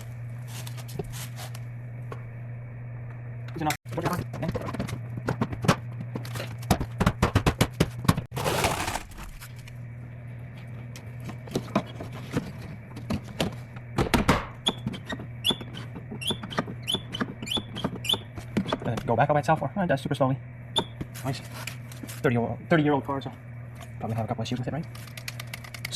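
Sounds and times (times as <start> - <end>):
scraping rustle: 8.3 - 9.5.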